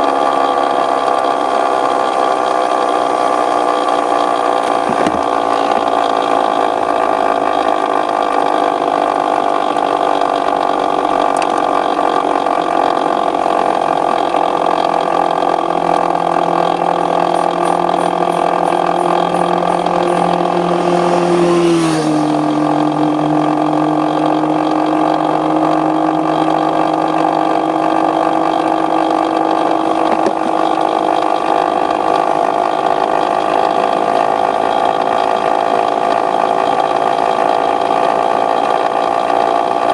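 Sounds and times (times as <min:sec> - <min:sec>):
two-stroke motorcycle engine running: 0:00.0 - 0:39.9.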